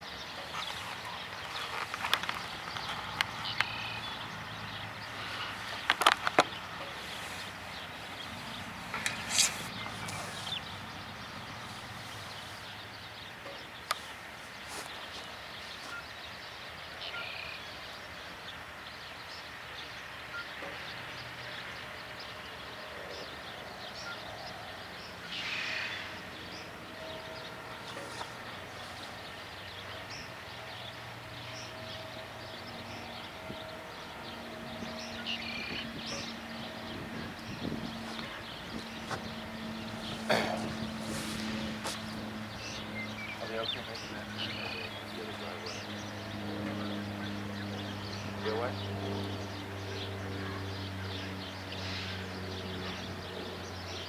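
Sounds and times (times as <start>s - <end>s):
rustling: 0.3s - 4.2s, 5.0s - 12.9s, 37.9s - 43.0s.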